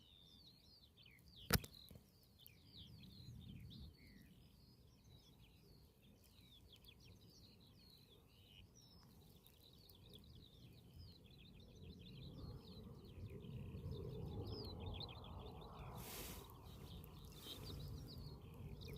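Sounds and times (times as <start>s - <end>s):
faint birds chirping: 0.0s - 18.9s
low rumbling outdoor noise: 2.6s - 18.9s
short burst of hiss: 16.0s - 16.5s.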